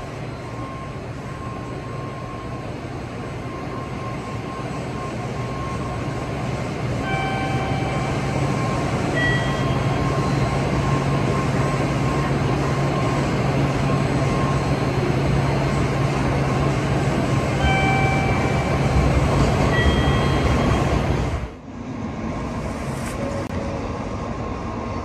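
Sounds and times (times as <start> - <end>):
train humming at platform: 0.0 - 25.0.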